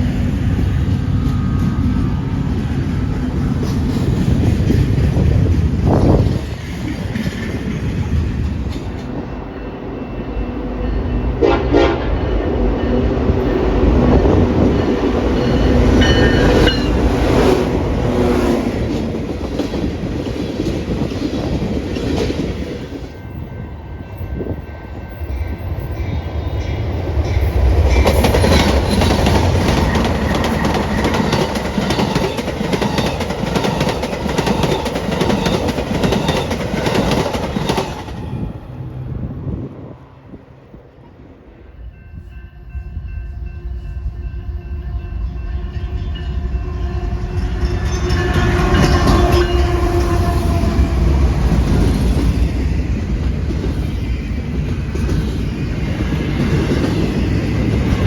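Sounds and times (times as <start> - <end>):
train wheels rumbling: 0.0 - 58.0
train horn: 9.6 - 14.5, 41.8 - 51.6.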